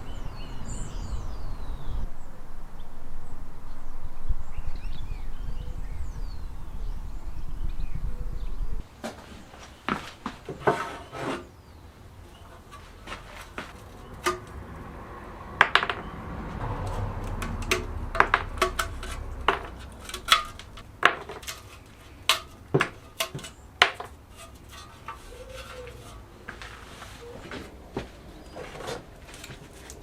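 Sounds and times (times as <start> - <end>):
metal parts and tools clinking: 16.8 - 26.3.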